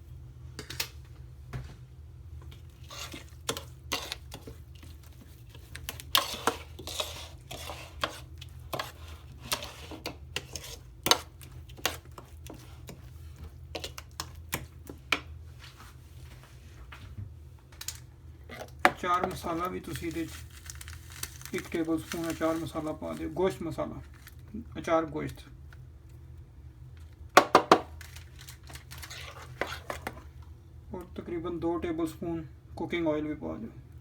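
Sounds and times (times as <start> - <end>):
thick paste being stirred: 2.4 - 16.4, 18.4 - 24.7, 27.1 - 30.5.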